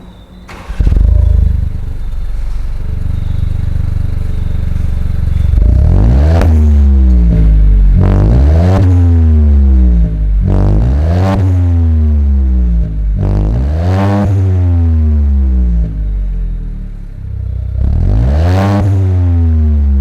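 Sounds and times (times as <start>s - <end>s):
car engine starting and idling: 0.0s - 20.0s
engine throttle blips: 0.0s - 20.0s.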